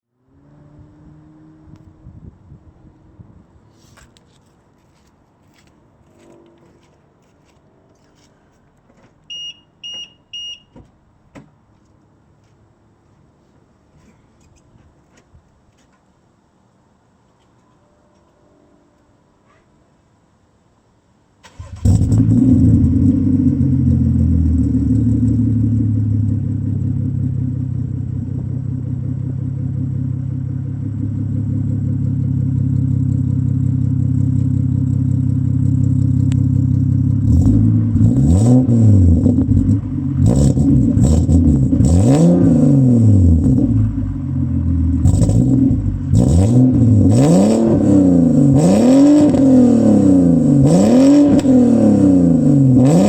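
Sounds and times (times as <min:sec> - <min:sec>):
car engine starting and idling: 0:21.4 - 0:53.0
engine revving: 0:21.5 - 0:26.8, 0:35.9 - 0:53.0.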